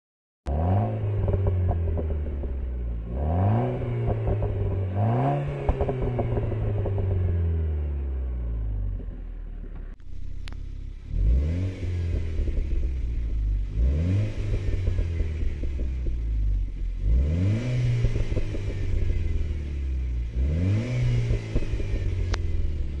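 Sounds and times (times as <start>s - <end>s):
car engine revving: 0.5s - 23.0s
exhaust crackling pops: 1.0s - 2.9s, 3.7s - 7.4s, 8.6s - 23.0s.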